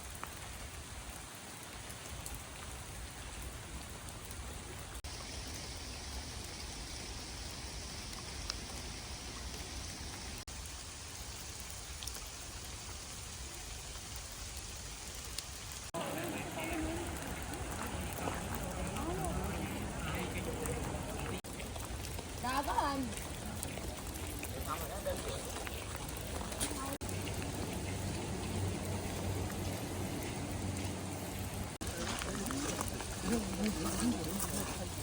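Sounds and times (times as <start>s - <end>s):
raindrop ticks: 0.0s - 35.0s
steady rain hiss: 0.0s - 35.0s.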